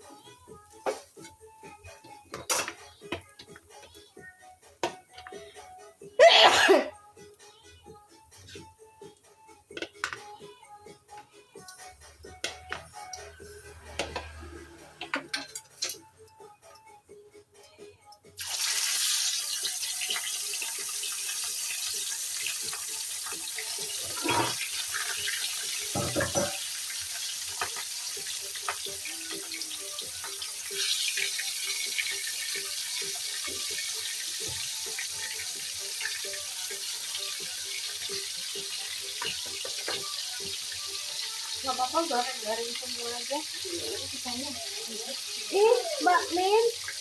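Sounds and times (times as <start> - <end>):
food sizzling in hot oil: 18.4 - 47.0.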